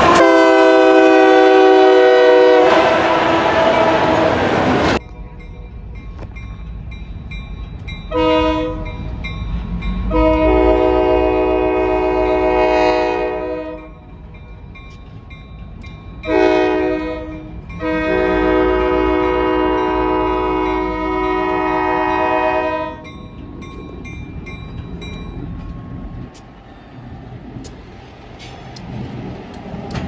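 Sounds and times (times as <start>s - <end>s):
locomotive air horn blasts: 0.0s - 5.0s, 8.1s - 8.9s, 10.0s - 14.0s, 16.3s - 23.1s
low train rumble: 0.0s - 30.0s.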